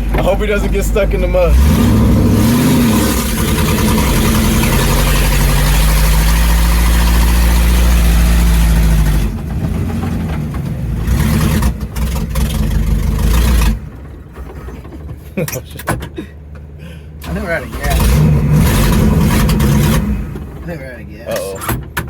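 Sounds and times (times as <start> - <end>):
toy truck engine sputtering: 1.5 - 9.0.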